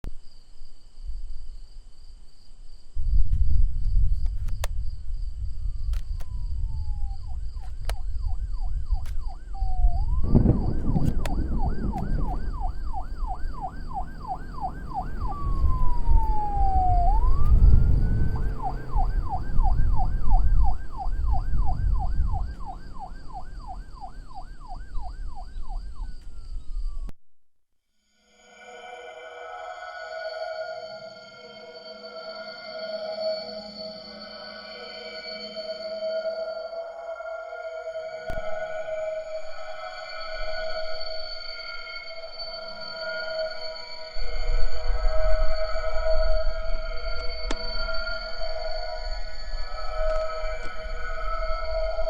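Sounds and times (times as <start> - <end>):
loud low rumble: 5.4 - 24.0
emergency siren yelping: 5.6 - 27.1, 28.4 - 52.0.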